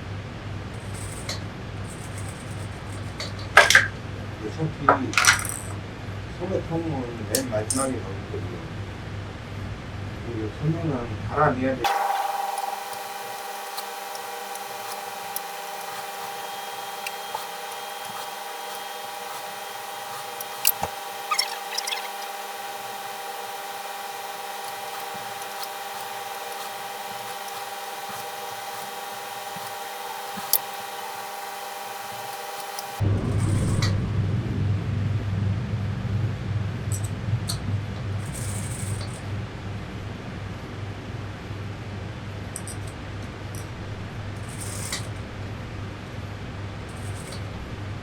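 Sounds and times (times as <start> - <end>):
steady multi-tone hum: 0.0 - 48.0
low rumble: 33.0 - 38.3.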